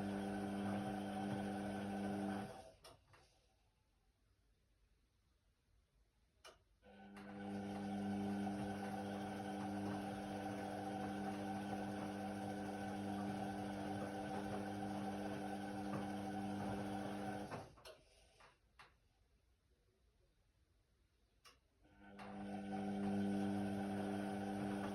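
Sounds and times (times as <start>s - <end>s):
washing machine motor humming: 0.0s - 2.6s, 7.0s - 17.8s, 22.0s - 24.9s.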